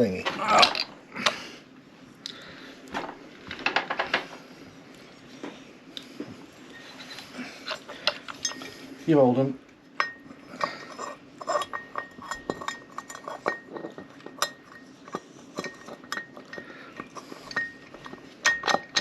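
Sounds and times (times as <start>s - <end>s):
metal engine parts clinking: 10.0s - 19.0s.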